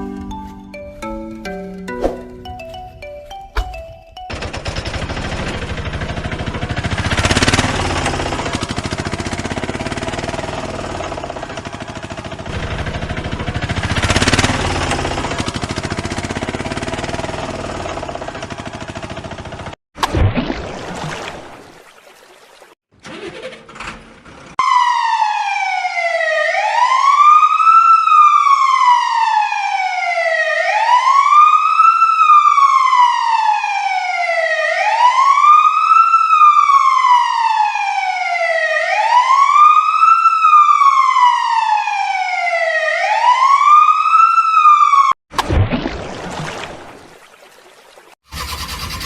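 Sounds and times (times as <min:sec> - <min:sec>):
wailing siren: 0:24.6 - 0:45.2.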